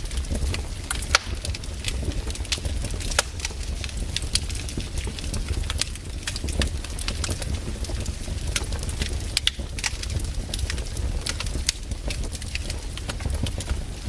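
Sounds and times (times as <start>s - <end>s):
campfire crackling and popping: 0.0s - 14.0s.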